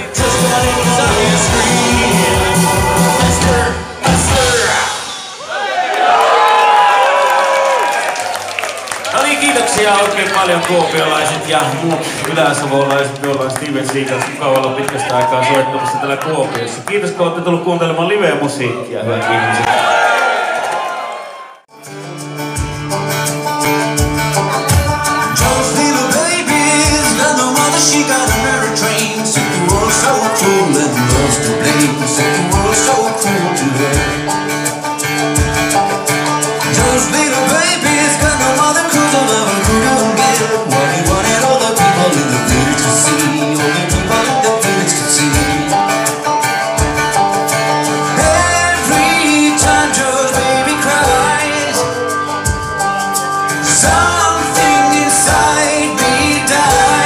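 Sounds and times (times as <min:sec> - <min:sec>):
person singing: 0:00.0 - 0:05.5, 0:24.5 - 0:34.8, 0:35.8 - 0:46.6, 0:47.5 - 0:57.0
bluegrass band playing: 0:00.0 - 0:05.7, 0:09.1 - 0:18.6, 0:21.7 - 0:57.0.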